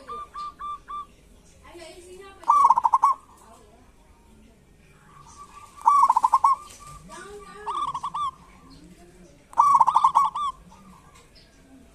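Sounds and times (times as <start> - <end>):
dove calling rolling notes: 0.0 - 1.2, 2.4 - 3.5, 5.0 - 11.5.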